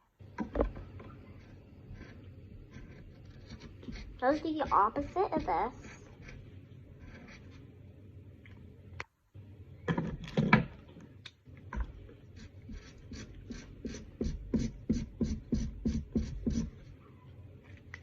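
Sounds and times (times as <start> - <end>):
marker scribbling: 1.2 - 7.7, 12.2 - 17.0.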